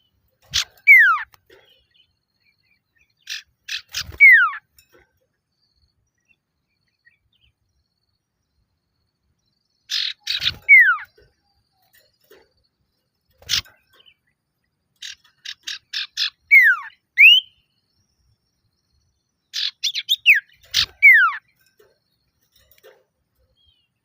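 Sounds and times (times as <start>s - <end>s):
bird harsh notes: 0.0s - 1.9s, 3.2s - 4.8s, 9.9s - 11.2s, 15.0s - 17.6s.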